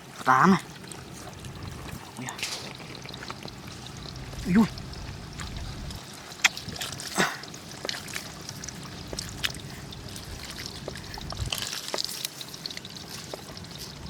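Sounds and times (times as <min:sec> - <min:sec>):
floodwater trickling and splashing: 0:00.0 - 0:14.0
short sharp splashes: 0:01.6 - 0:03.4.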